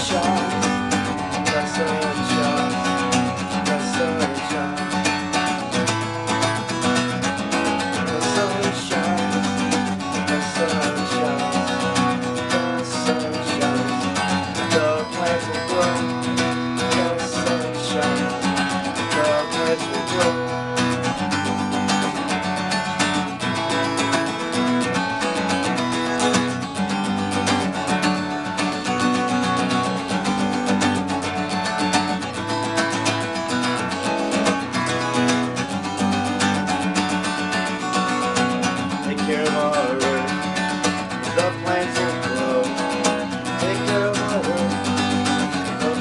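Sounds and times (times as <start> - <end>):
acoustic guitar playing: 0.0 - 46.0.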